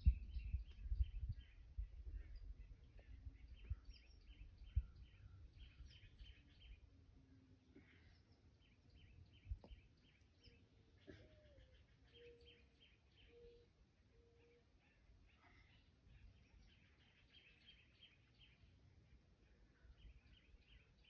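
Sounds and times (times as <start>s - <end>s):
wind rumble on microphone: 0.0s - 6.8s
small birds chirping: 0.0s - 21.0s.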